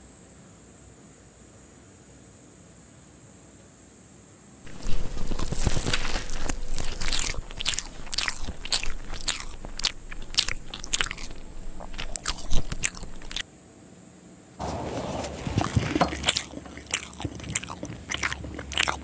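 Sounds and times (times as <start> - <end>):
biting and chewing: 4.7 - 13.4, 14.6 - 19.0
sharp crackly clicks: 4.7 - 13.4.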